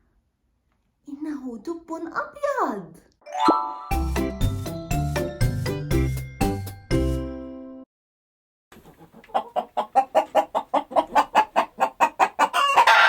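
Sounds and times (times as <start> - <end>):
chicken clucking: 8.8 - 13.0
chicken squawk: 8.8 - 13.0.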